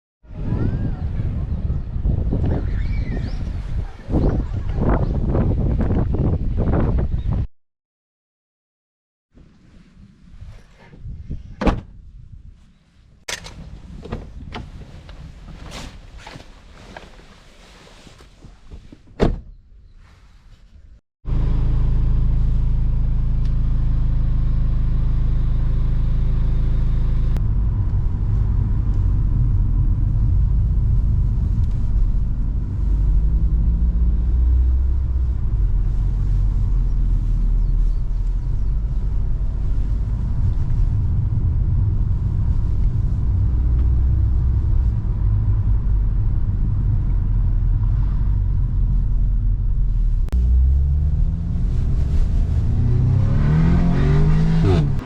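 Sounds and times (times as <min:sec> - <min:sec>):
car engine accelerating hard: 0:21.3 - 0:55.0.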